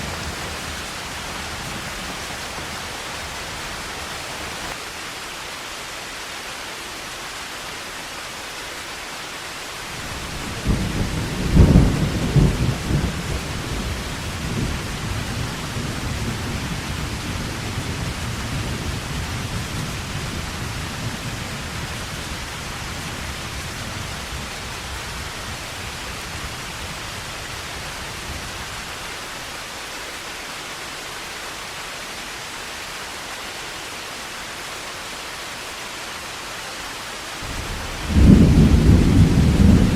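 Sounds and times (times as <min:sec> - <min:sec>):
heavy rain falling: 0:00.0 - 0:39.9
thunder cracking and rolling: 0:10.0 - 0:19.8, 0:37.4 - 0:39.9.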